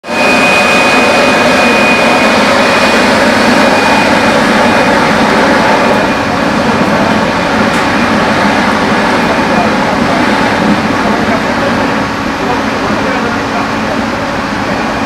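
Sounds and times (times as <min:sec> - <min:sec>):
high whine: 0:00.0 - 0:15.0.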